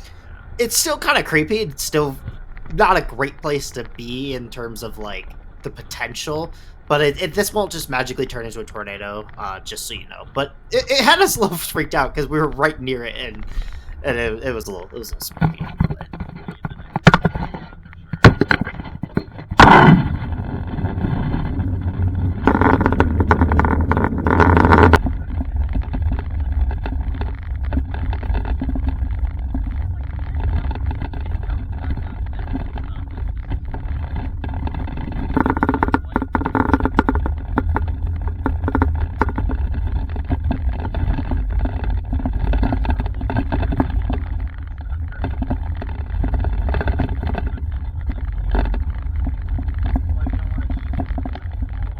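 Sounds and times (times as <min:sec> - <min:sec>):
sharp knocks: 0:15.3 - 0:20.2.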